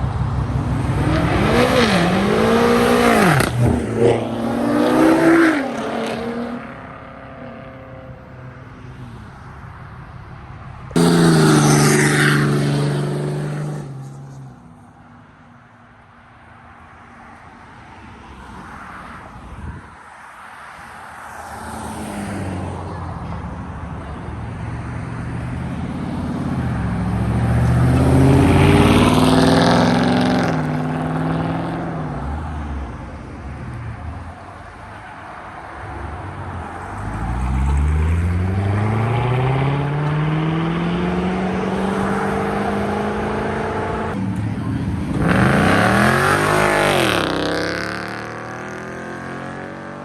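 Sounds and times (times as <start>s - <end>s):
car engine revving hard: 0.9s - 6.6s, 27.7s - 31.8s, 45.1s - 50.0s.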